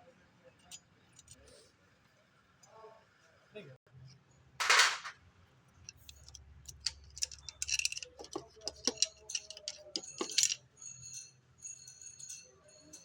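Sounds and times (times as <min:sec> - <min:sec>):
sharp clicks and metallic clinks: 0:05.9 - 0:10.6.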